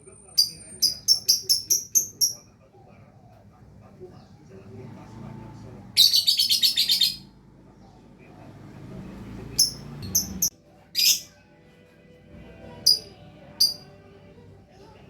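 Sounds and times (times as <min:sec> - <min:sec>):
lovebird high calls: 0:06.0 - 0:07.3, 0:09.6 - 0:11.3
lovebird buzzy trill: 0:12.9 - 0:14.1.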